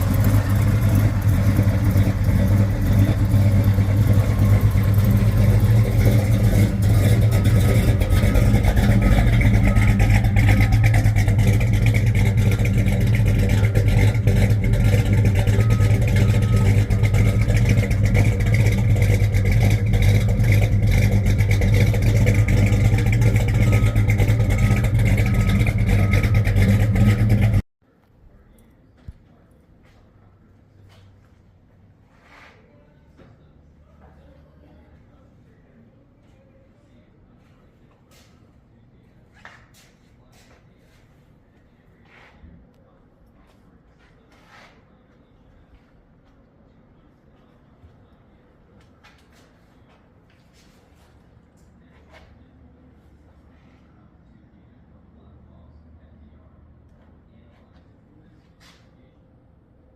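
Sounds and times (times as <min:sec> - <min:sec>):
loud car engine running: 0:00.0 - 0:27.6.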